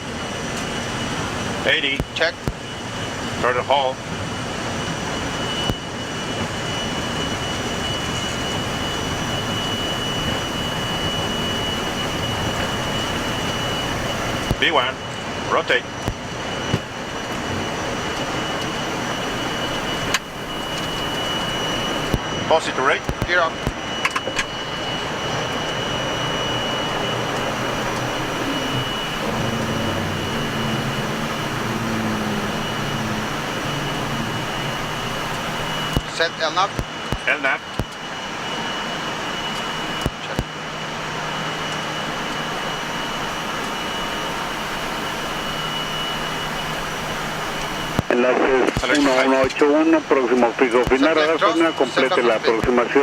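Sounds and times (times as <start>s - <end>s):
jet engines at takeoff thrust: 0.0s - 53.0s
low hum: 5.0s - 22.4s, 23.8s - 36.7s
thin high tone: 16.9s - 22.2s, 24.0s - 36.5s.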